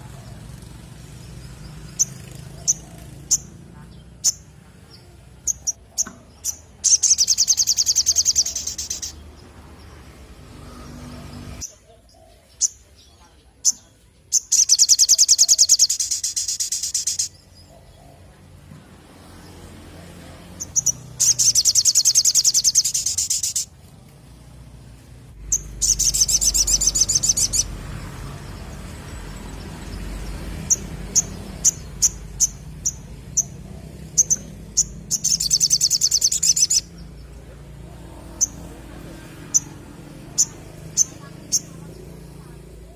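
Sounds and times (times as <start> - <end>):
bird trilling song: 0.0 - 9.9, 10.8 - 18.4, 20.5 - 23.7, 25.4 - 37.5, 38.2 - 42.9
bird sharp chips: 5.5 - 9.2, 20.6 - 23.7, 25.4 - 27.8, 29.5 - 37.0.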